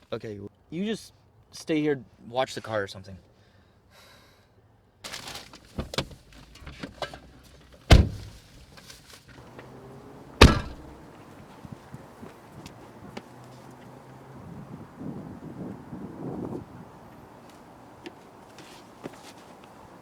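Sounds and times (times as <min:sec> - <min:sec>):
rustling: 0:05.1 - 0:14.1, 0:17.3 - 0:20.0
car doors slamming: 0:05.8 - 0:06.2, 0:07.9 - 0:08.4, 0:09.4 - 0:15.0
light knocks: 0:09.5 - 0:11.2.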